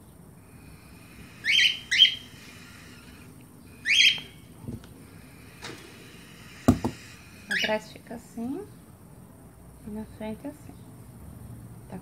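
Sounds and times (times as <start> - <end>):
bird chirping: 0.0 - 7.9.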